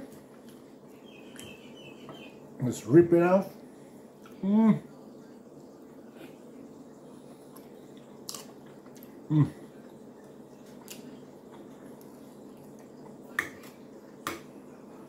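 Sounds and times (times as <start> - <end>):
steady low hum: 0.0 - 15.0
person biting and chewing: 8.2 - 9.1.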